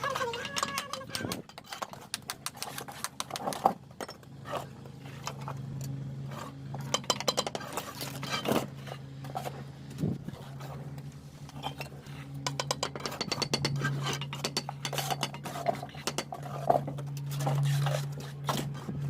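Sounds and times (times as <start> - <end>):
trowel tapping and scraping bricks: 0.0 - 4.2, 6.8 - 8.7, 11.5 - 18.8.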